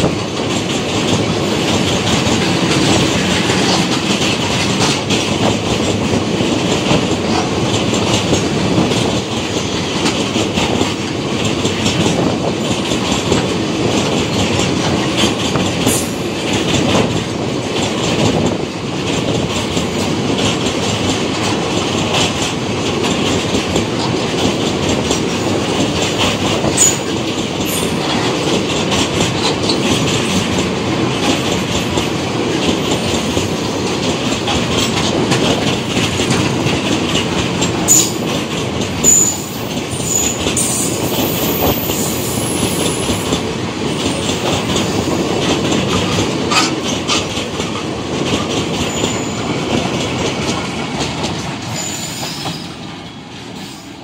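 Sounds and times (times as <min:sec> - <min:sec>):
freight train wheels clickety-clack: 0:00.0 - 0:54.0
high wheel squeals: 0:51.7 - 0:52.8.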